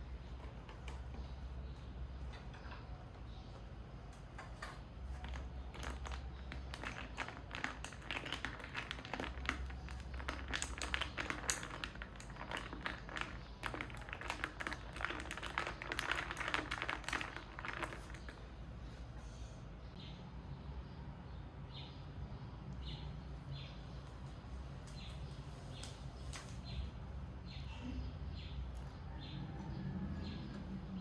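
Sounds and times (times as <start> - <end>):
taps clicks and crinkles from handling: 4.1 - 18.4.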